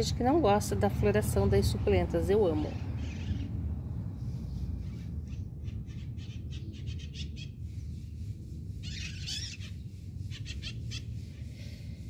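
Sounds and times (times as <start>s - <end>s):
low rumble: 0.0s - 8.8s
bird calling: 8.8s - 11.1s.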